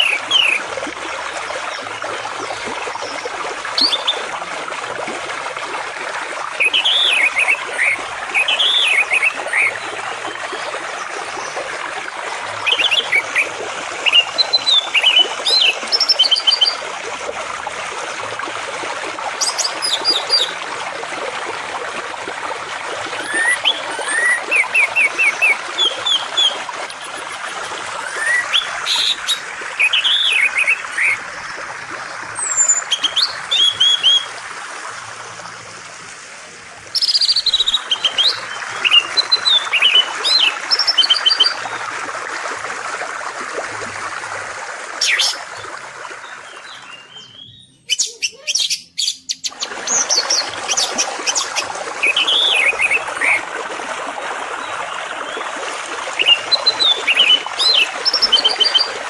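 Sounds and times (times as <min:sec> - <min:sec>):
flowing water: 0:00.0 - 0:59.0
songbirds chirping: 0:46.2 - 0:49.5.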